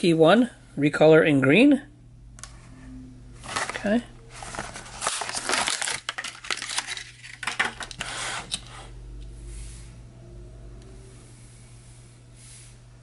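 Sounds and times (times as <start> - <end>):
low hum: 1.8 - 5.5, 8.6 - 13.0
plastic blister pack crackling: 3.4 - 8.0.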